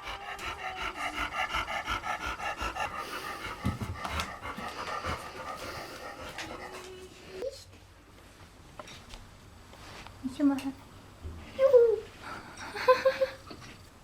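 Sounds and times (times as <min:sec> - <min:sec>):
cat panting: 0:00.0 - 0:07.4.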